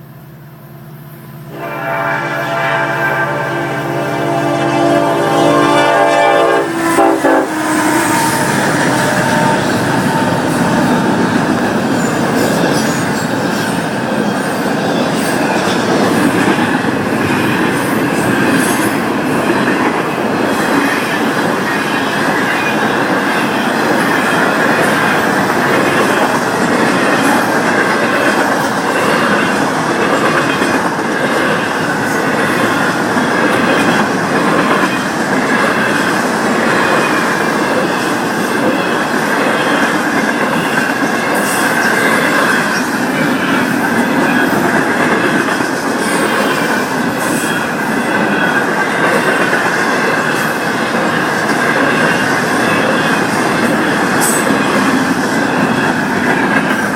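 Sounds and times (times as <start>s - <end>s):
train wheels on rails: 0.0s - 56.9s.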